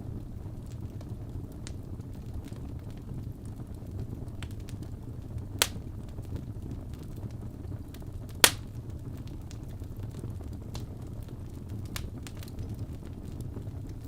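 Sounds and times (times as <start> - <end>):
wood fire crackling: 0.0 - 14.0
sharp pops of burning wood: 4.0 - 4.9, 5.5 - 9.8, 11.6 - 14.0.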